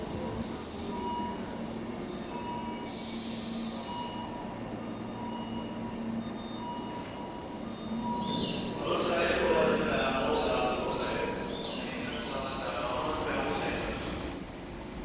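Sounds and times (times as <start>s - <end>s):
electric train rumble: 0.0s - 15.0s.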